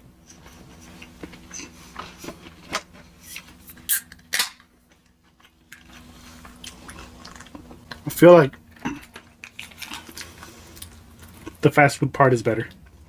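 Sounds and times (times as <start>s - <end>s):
person chewing crunchy food: 5.2s - 8.0s, 8.6s - 11.6s.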